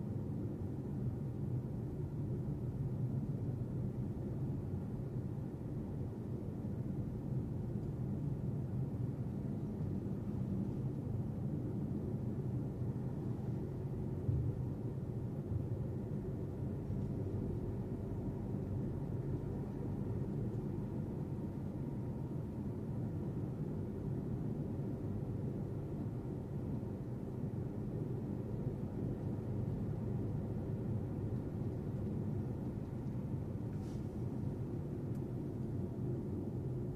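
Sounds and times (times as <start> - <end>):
car road and engine rumble: 0.0 - 36.9.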